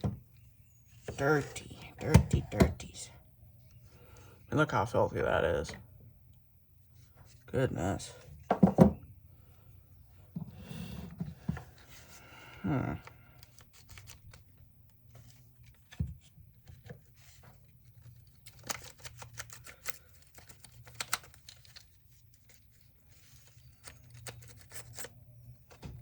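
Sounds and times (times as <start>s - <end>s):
dull knock: 8.5s - 9.0s.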